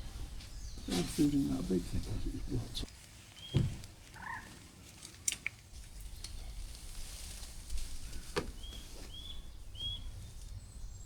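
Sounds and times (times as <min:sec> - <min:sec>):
small bird calling: 0:03.4 - 0:04.6.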